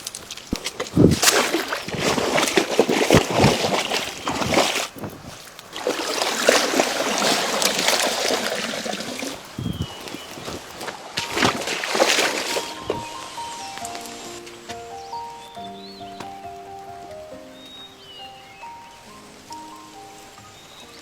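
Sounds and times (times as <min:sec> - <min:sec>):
water splashing in a stream: 0:00.0 - 0:15.6.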